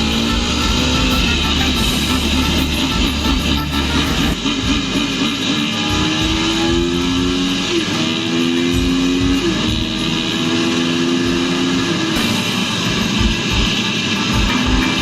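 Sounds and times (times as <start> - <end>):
dirt bike engine revving: 0.0 - 15.0
guitar music: 0.0 - 15.0.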